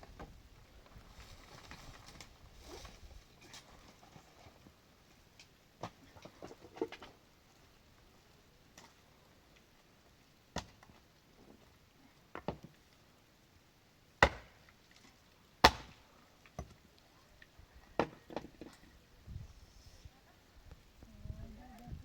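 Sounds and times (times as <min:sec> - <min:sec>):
wood being chopped: 0:10.5 - 0:10.8, 0:14.2 - 0:14.6, 0:15.6 - 0:16.0.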